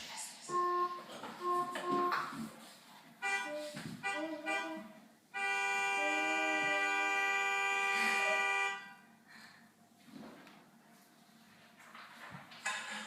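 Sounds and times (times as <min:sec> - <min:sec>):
car horn honking: 0:00.5 - 0:02.5, 0:03.2 - 0:09.1.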